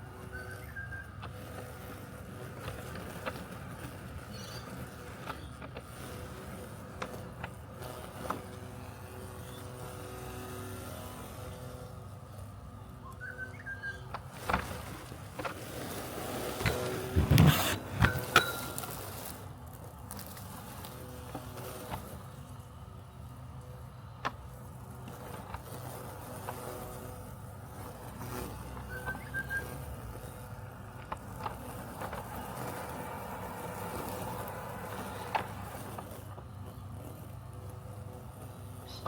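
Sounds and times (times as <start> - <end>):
robotic lawn mower humming: 0.0 - 39.0
rough bursts: 14.2 - 22.8.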